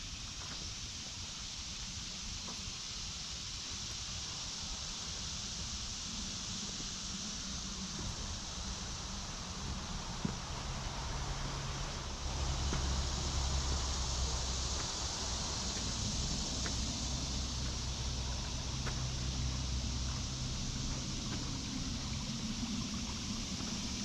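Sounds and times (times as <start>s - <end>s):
creek water running: 0.0s - 24.0s
low rumble: 7.7s - 24.0s
faint ticks: 10.1s - 24.0s.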